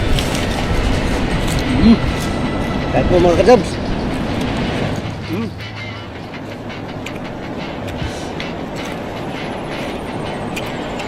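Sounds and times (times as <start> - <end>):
crunchy chewing: 0.0 - 2.9, 6.5 - 11.0
rushing background noise: 0.0 - 11.0.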